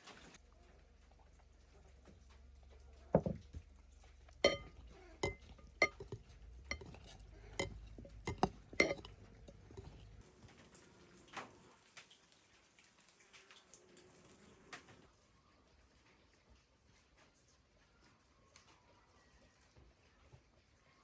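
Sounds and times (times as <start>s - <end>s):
metal utensils clinking: 4.4s - 10.1s.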